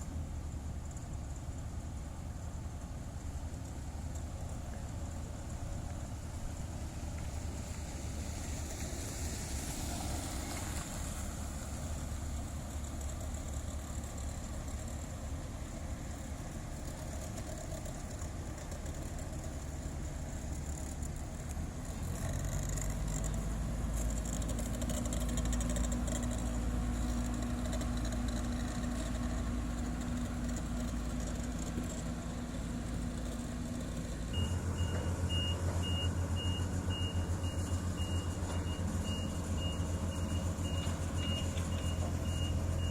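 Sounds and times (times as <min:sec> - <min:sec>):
heavy diesel engines running: 0:00.0 - 0:42.9
reversing alarm beeping: 0:34.4 - 0:42.9.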